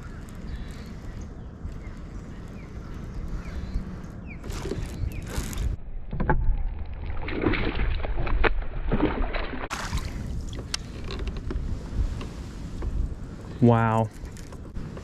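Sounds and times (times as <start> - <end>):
water washing and splashing: 7.0 - 10.6.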